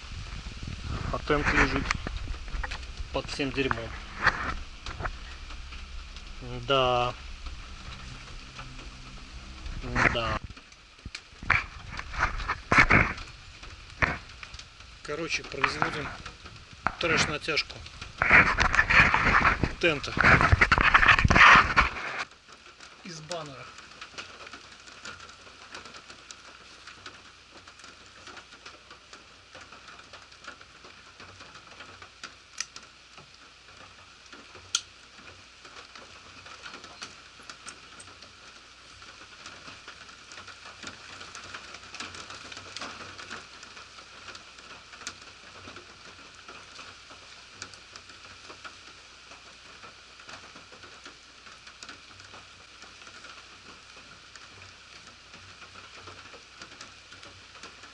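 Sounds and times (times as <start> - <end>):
rain pattering: 0.0 - 57.9.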